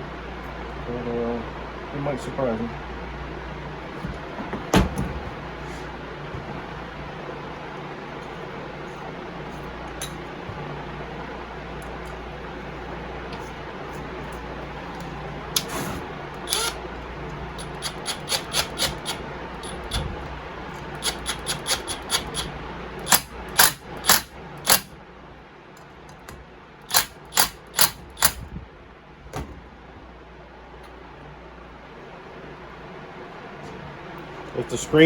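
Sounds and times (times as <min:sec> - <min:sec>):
metallic clicks of hand tools: 0:21.0 - 0:24.9, 0:26.9 - 0:28.4.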